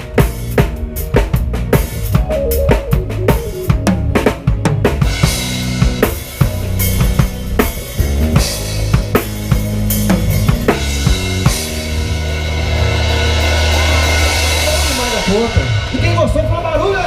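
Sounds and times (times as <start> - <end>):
live band playing: 0.0 - 17.0
drum kit hits: 1.9 - 14.0
sustained bass notes: 2.0 - 7.4.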